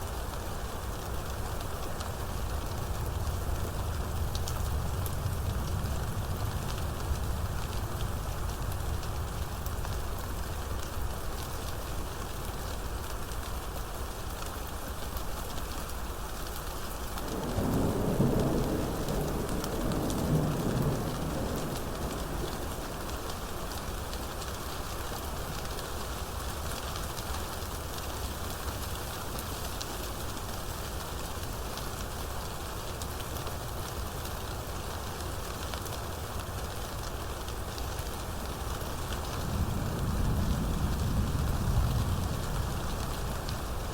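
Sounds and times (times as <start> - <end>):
steady rain: 0.0 - 43.9
thunder rumbling: 2.3 - 10.2, 17.2 - 24.6, 38.5 - 43.9.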